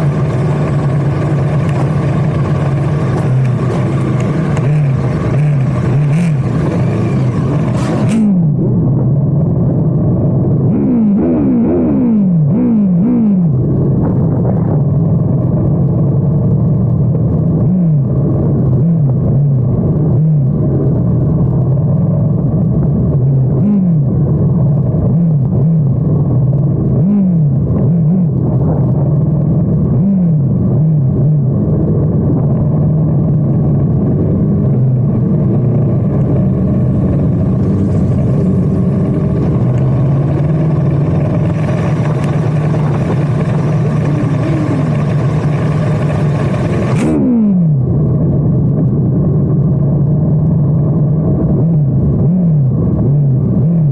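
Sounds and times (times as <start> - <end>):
motorcycle throttle blips: 0.0 - 8.9, 22.6 - 48.0
motorcycle engine running: 0.0 - 53.9.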